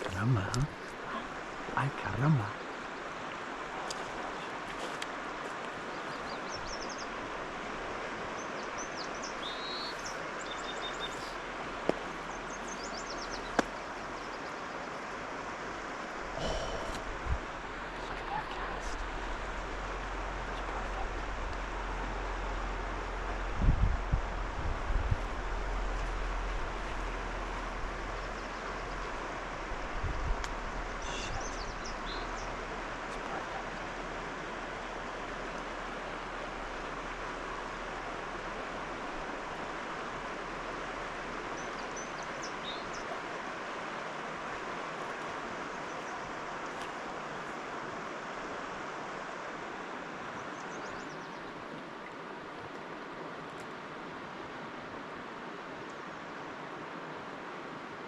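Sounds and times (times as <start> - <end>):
stream water rushing: 0.0 - 58.0
small birds chirping: 3.8 - 7.2, 8.3 - 15.1, 30.2 - 33.8
bird chirping: 8.4 - 11.4, 12.2 - 13.6, 31.0 - 32.5.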